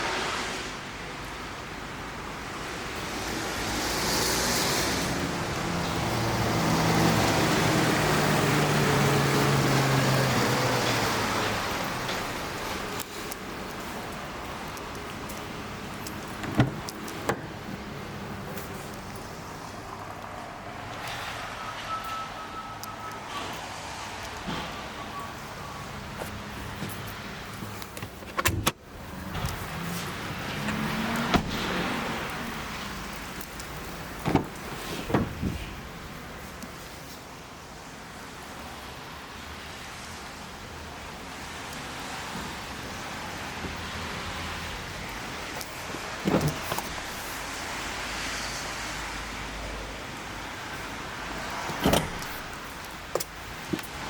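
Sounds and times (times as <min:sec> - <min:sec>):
loud clatter and thump: 0:16.4 - 0:17.5, 0:34.2 - 0:35.7.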